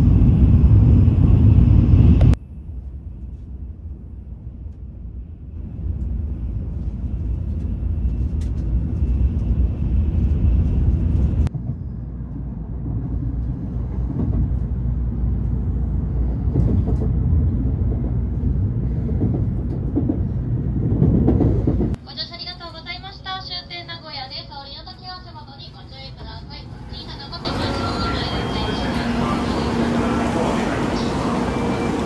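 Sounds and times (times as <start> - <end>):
train running rumble: 0.0 - 22.0, 25.4 - 32.0.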